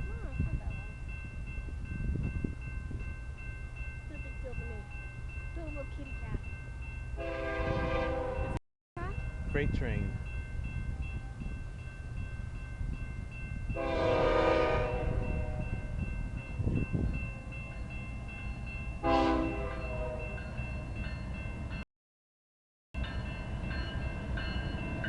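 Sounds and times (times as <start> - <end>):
crossing bells ringing: 0.0 - 21.8, 23.0 - 25.0
train rumble: 0.0 - 21.8
locomotive air horn blasts: 7.2 - 8.6, 13.8 - 15.7, 19.0 - 20.4.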